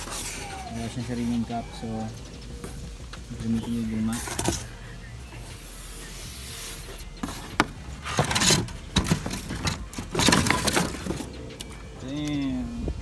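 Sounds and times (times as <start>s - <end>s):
packaging rustling and scraping: 0.0s - 12.0s
clicks and knocks of handling parts: 7.0s - 12.4s.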